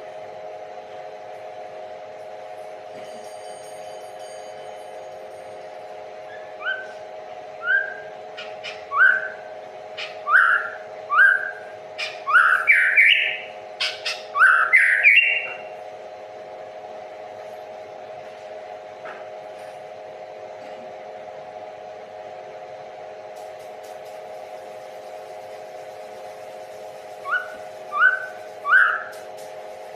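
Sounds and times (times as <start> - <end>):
steady hum: 0.0 - 29.9
songbird whistling: 6.3 - 7.0, 7.6 - 9.4, 10.0 - 15.6, 27.2 - 29.1.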